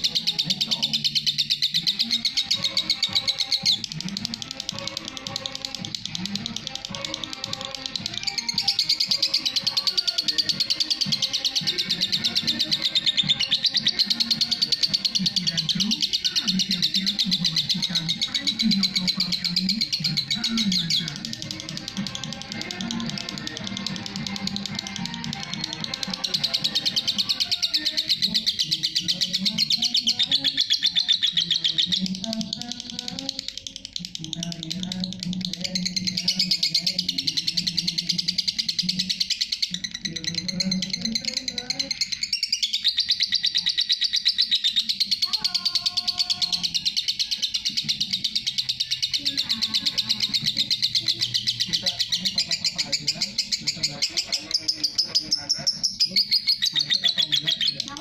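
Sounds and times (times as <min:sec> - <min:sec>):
bird chattering high chirps: 0:00.0 - 0:58.0.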